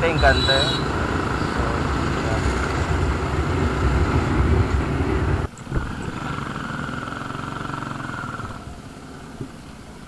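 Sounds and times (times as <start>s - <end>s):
motorcycle engine running: 0.0s - 9.3s
wind noise rushing: 0.8s - 6.1s.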